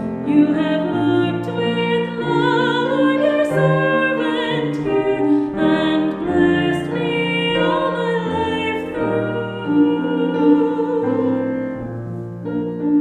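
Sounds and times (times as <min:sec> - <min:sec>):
piano accompaniment: 0:00.0 - 0:13.0.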